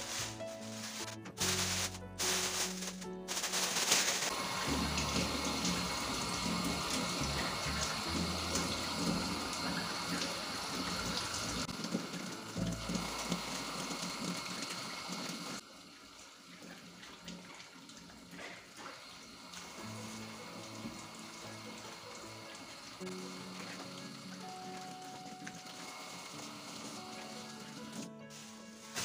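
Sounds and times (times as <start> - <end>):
soft background music: 0.0 - 15.2, 19.5 - 29.0
water running from a tap: 0.0 - 29.0.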